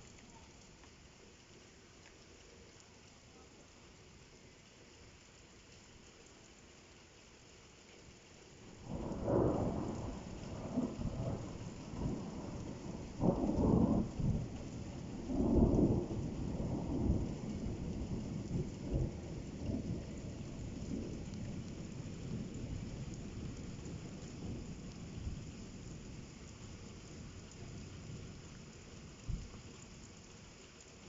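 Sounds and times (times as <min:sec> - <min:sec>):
falling rain hiss: 0:00.0 - 0:31.0
thunder rumbling: 0:08.8 - 0:25.4.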